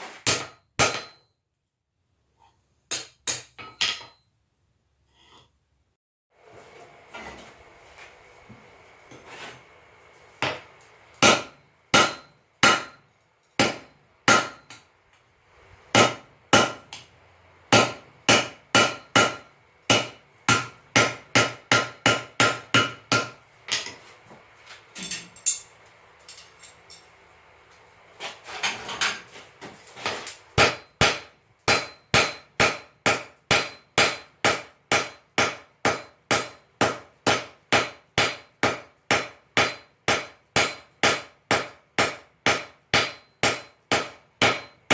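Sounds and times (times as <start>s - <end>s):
hammer striking anvil: 0.2s - 1.3s, 2.9s - 4.2s, 11.2s - 13.0s, 13.6s - 14.8s, 15.9s - 17.1s, 17.7s - 24.0s, 30.6s - 44.9s.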